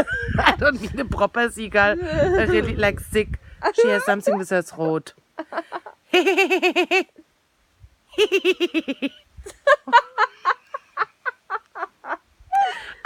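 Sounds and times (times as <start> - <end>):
woman giggling: 5.4 - 7.1, 8.2 - 13.0.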